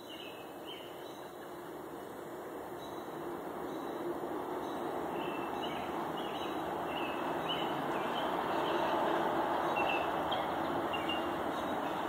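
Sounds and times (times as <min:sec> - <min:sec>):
steady rushing noise: 0:01.5 - 0:12.0
bird chirping: 0:04.6 - 0:12.0.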